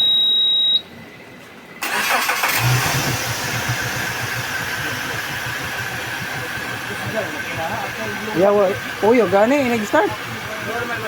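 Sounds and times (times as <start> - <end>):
high electronic warning beep: 0.0 - 0.9
outboard engine starting and running: 1.8 - 11.0.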